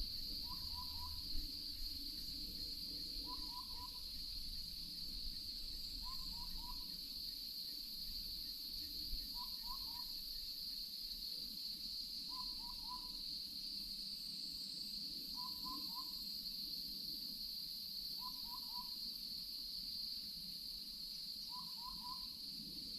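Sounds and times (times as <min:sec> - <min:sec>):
high-pitched insect hum: 0:00.0 - 0:22.9.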